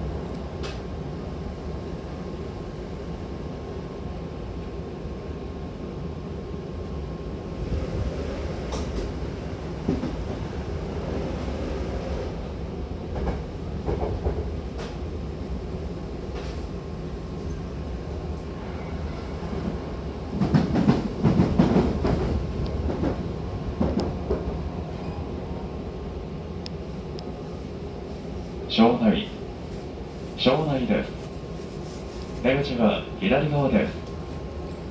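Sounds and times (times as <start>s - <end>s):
train rumbling: 0.0s - 34.9s.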